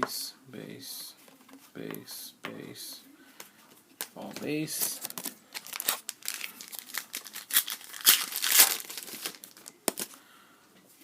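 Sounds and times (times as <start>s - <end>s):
plastic wrapper crackling: 4.8s - 10.2s
plastic wrapper tearing: 4.8s - 10.2s.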